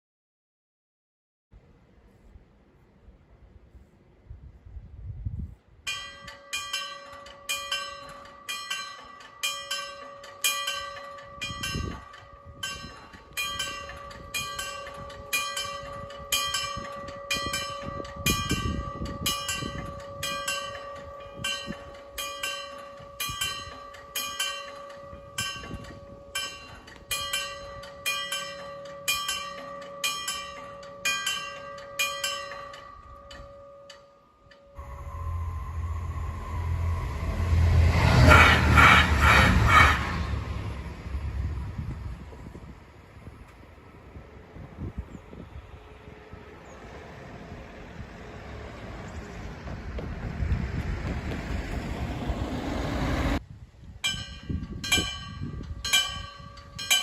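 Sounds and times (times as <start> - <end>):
level crossing bell ringing: 5.9 - 37.9.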